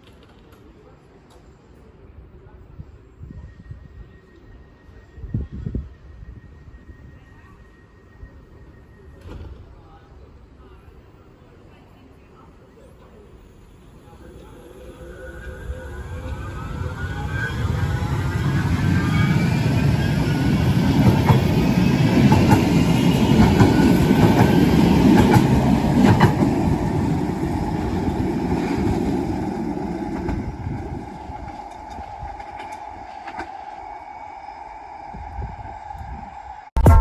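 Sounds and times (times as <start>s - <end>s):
tram traction motors whining: 13.5s - 36.6s
tram wheels clicking over rails: 18.8s - 33.8s.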